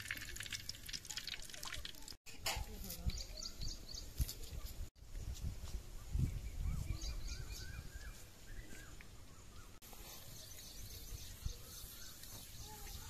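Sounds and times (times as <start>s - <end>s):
birds chirping: 2.8s - 4.8s, 6.0s - 13.0s.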